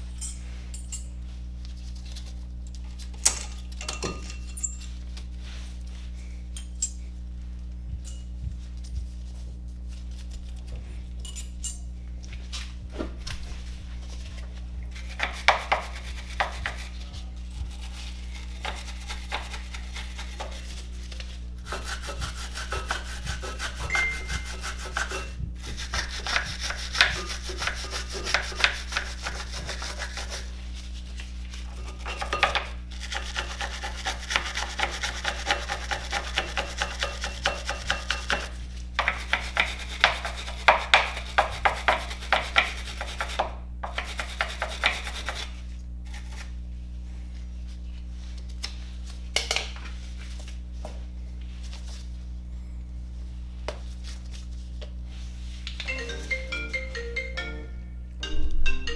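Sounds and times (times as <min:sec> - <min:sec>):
scrubbing on brake parts: 0:13.1 - 0:46.6.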